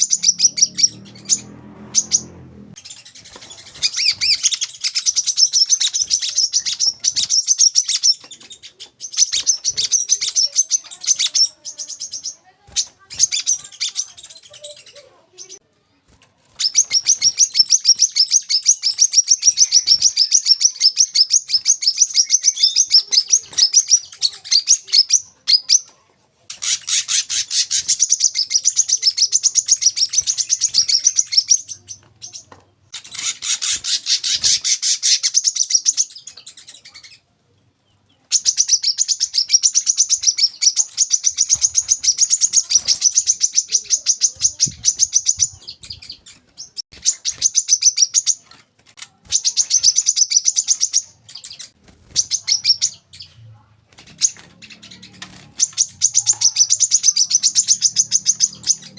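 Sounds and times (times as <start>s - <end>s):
bird chattering song: 0.0s - 15.6s, 16.5s - 25.9s, 26.5s - 37.3s, 37.9s - 53.5s, 54.1s - 58.9s.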